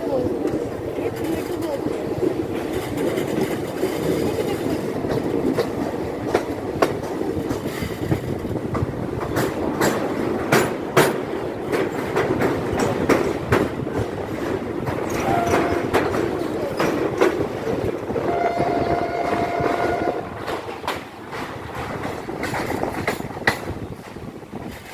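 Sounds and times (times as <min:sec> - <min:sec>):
train rumbling on rails: 0:00.0 - 0:24.9
wheels clacking over rail joints: 0:00.0 - 0:24.9.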